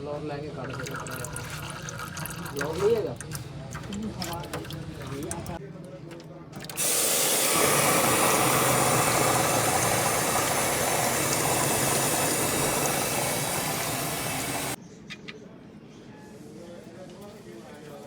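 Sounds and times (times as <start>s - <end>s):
compressed-air blow gun hissing: 6.8s - 14.8s.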